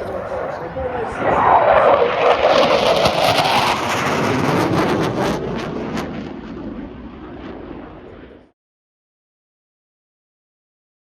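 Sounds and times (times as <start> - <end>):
fighter jet passing: 0.0 - 8.6.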